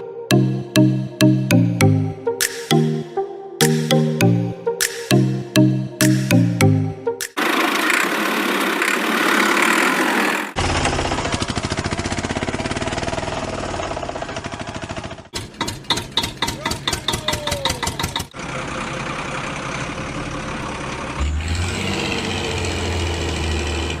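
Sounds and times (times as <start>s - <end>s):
vehicle engine running: 7.4s - 15.9s, 18.0s - 24.0s.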